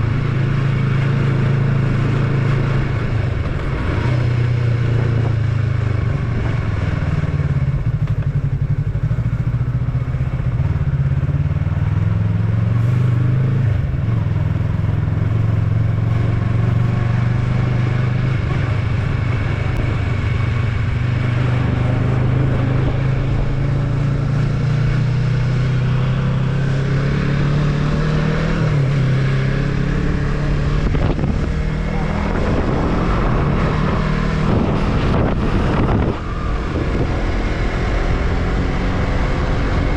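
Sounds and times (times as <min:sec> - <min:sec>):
motorcycle engine running: 0:00.0 - 0:39.9
wind noise on microphone: 0:27.2 - 0:39.9.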